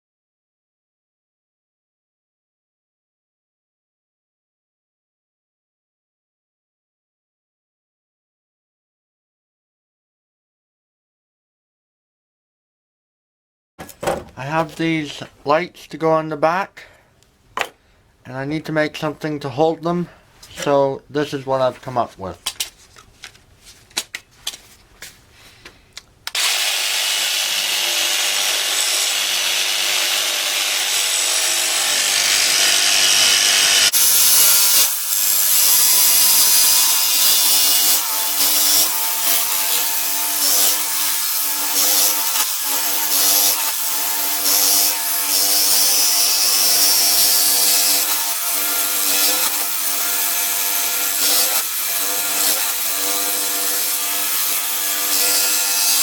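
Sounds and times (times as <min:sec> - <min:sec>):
power tool running: 0:26.3 - 0:56.0.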